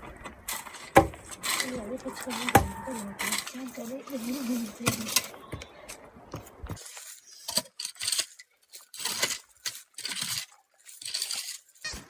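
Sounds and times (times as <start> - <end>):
rustling: 0.0 - 12.0
small objects clinking: 6.8 - 12.0.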